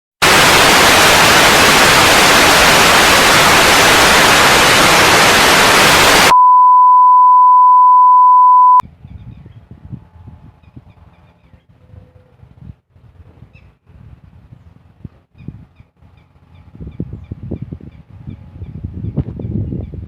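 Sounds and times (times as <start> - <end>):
loud static hiss: 0.2 - 6.4
steady pure beep: 2.7 - 8.8.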